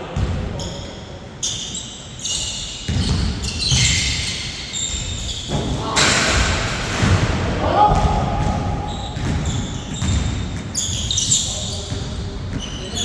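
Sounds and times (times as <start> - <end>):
shoes squeaking on floor: 0.6 - 6.1, 8.8 - 13.0
basketball bouncing: 2.9 - 4.0, 5.5 - 12.7.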